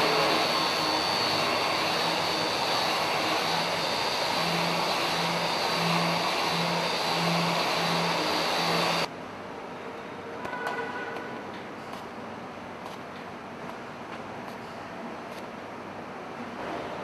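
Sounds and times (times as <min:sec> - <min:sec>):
power polisher whining on metal: 0:00.0 - 0:09.1.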